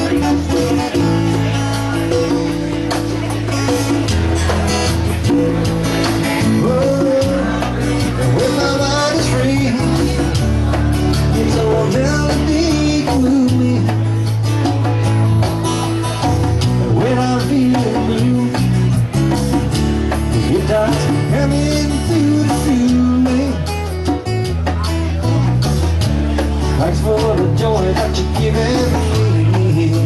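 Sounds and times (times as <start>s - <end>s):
person singing: 0.0s - 3.3s, 6.2s - 14.4s, 16.7s - 19.0s, 20.3s - 24.0s, 26.8s - 30.0s
live band playing: 0.0s - 30.0s.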